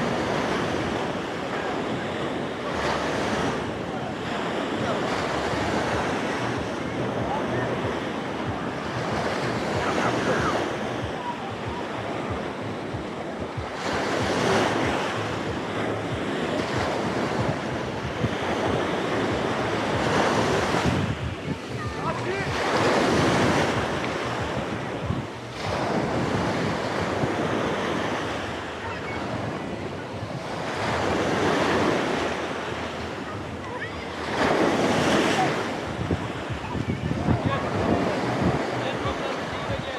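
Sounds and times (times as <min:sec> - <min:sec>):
sea waves breaking on beach: 0:00.0 - 0:39.9
wind buffeting microphone: 0:00.0 - 0:39.9.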